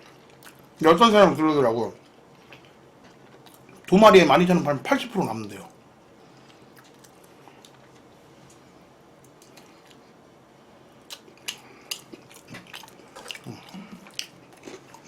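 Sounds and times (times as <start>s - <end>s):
person chewing food: 0.0s - 0.8s, 2.0s - 3.9s, 6.2s - 10.3s, 10.9s - 15.0s
wet smacking clicks: 11.1s - 13.4s.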